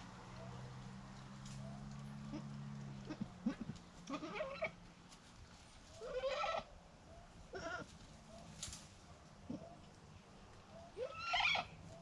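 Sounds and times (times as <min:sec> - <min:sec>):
goat bleating: 0:02.3 - 0:04.8, 0:06.0 - 0:06.7, 0:07.5 - 0:07.9, 0:11.0 - 0:11.7.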